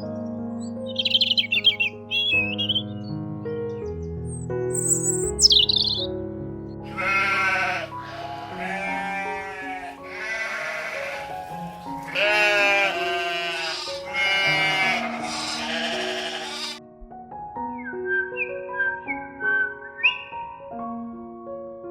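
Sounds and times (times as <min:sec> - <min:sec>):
background music: 0:00.0 - 0:21.9
sheep bleating: 0:06.9 - 0:16.8.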